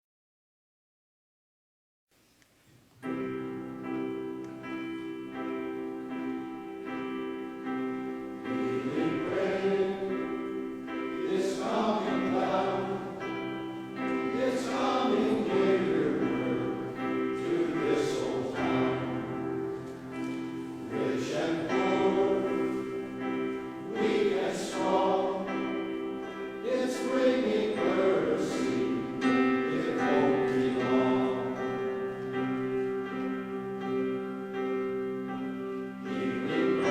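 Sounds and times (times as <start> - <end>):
sustained accompaniment chords: 3.0 - 36.9
male chorus singing in harmony: 8.3 - 32.9, 35.9 - 36.9.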